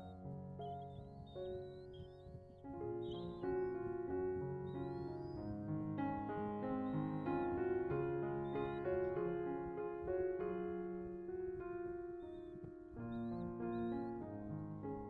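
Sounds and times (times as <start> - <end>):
faint high bird chirps: 0.0 - 9.4, 11.9 - 14.4
slow piano music: 0.0 - 15.0.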